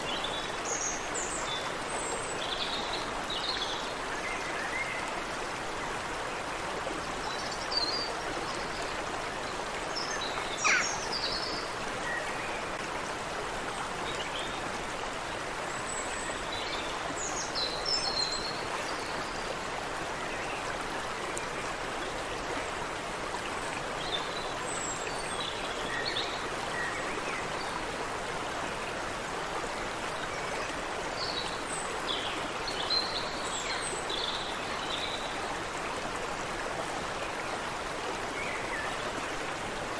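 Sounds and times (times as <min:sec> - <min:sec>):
creek water over stones: 0:00.0 - 0:39.9
birds chirping: 0:10.5 - 0:11.2.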